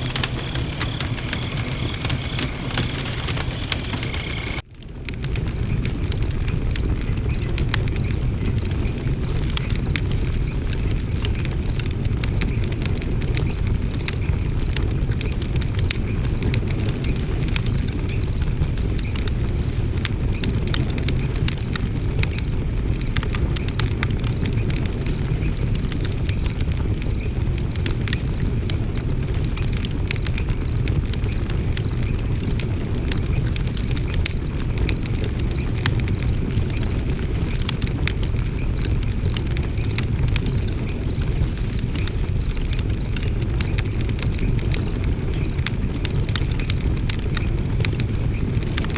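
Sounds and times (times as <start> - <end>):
low fire rumble: 0.0 - 48.9
wood fire crackling and popping: 0.0 - 48.9.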